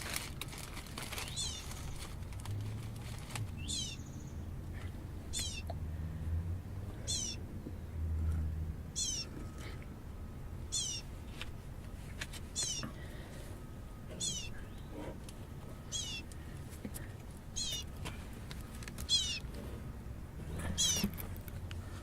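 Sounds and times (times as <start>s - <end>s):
baby bird chirping: 1.2s - 1.9s, 3.6s - 4.4s, 5.3s - 5.7s, 7.0s - 7.4s, 8.9s - 9.6s, 10.7s - 11.1s, 12.6s - 12.9s, 14.2s - 14.9s, 15.8s - 16.3s, 17.5s - 18.0s, 19.0s - 19.5s, 20.5s - 21.1s.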